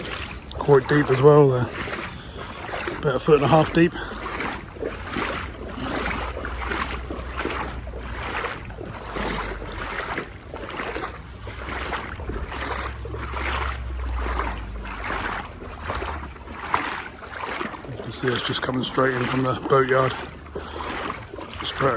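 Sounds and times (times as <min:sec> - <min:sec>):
wading through water: 0:00.0 - 0:21.9
wind rumble on microphone: 0:04.1 - 0:18.1.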